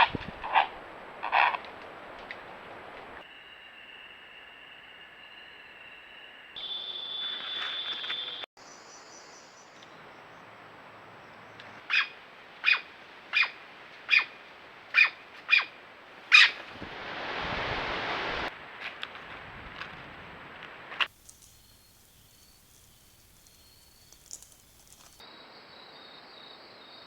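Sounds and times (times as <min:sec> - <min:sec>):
rushing noise: 0:16.5 - 0:21.1.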